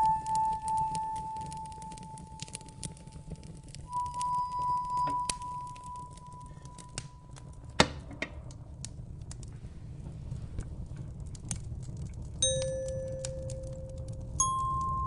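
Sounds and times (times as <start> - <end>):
wood fire crackling: 0.0 - 15.0
bell-like chime note: 3.9 - 7.0, 14.4 - 15.0.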